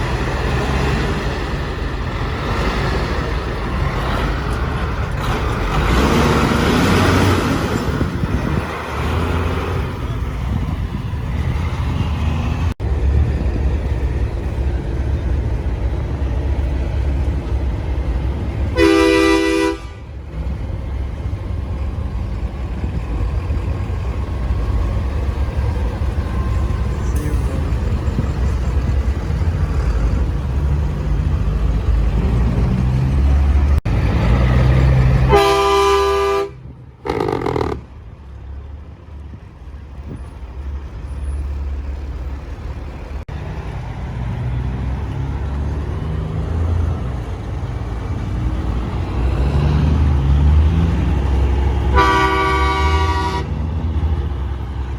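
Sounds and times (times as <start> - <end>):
diesel truck engines rumbling: 0.0 - 54.9
truck air horn blasts: 18.8 - 20.1, 35.3 - 37.9, 51.9 - 53.7.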